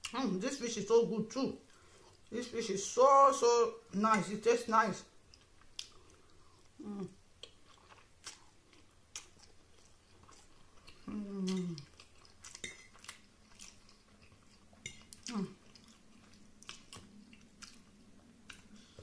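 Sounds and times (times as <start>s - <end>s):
person chewing spaghetti: 1.6s - 2.4s, 5.1s - 19.0s.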